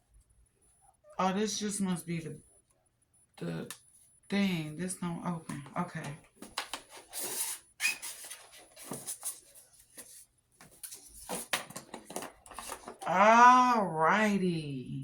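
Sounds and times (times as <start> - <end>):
cardboard rubbing and rustling: 6.5 - 13.0.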